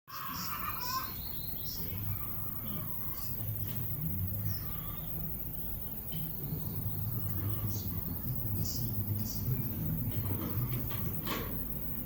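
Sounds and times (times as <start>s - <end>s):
birds chirping: 0.1s - 12.0s
low background rumble: 0.2s - 11.2s.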